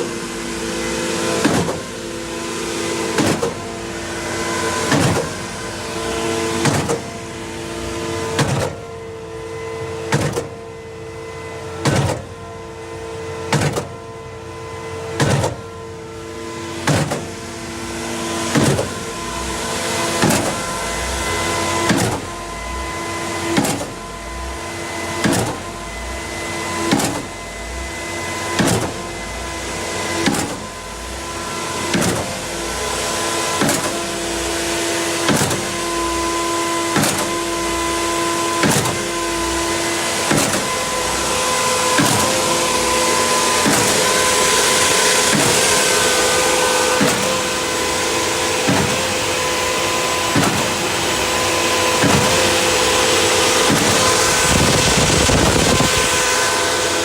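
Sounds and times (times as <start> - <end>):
motor hum: 0.0 - 57.0
pump hiss: 35.2 - 57.0.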